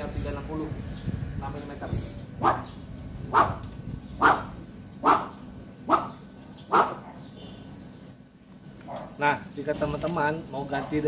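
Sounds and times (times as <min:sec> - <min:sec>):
dog barking: 0:02.4 - 0:03.6, 0:04.2 - 0:07.2.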